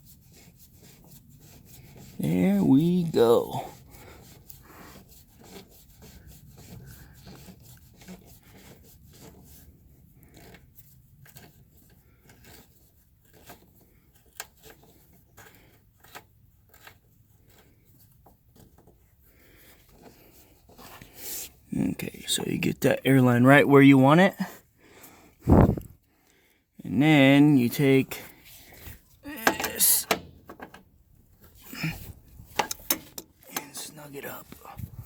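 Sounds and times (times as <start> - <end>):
hands rubbing air line: 25.4 - 26.0.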